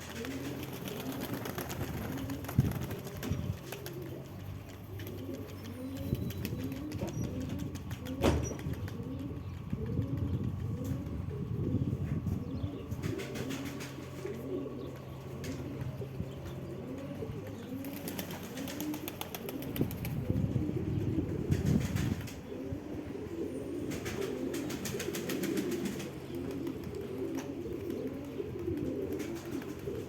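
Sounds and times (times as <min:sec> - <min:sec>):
wings fluttering and clapping: 0:00.0 - 0:11.0, 0:12.9 - 0:14.4, 0:17.7 - 0:20.4, 0:21.4 - 0:22.4, 0:23.8 - 0:30.0
pigeons cooing: 0:00.0 - 0:30.0.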